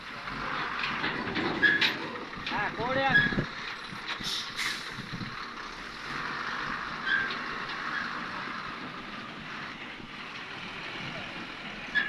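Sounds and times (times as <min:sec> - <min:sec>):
short squeal: 0:07.0 - 0:07.3.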